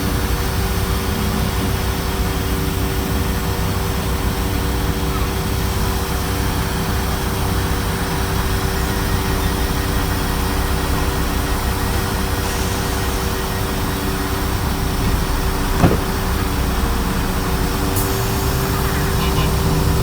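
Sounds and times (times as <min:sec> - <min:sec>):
diesel train engine idling: 0:00.0 - 0:20.0
short knock: 0:15.8 - 0:16.2.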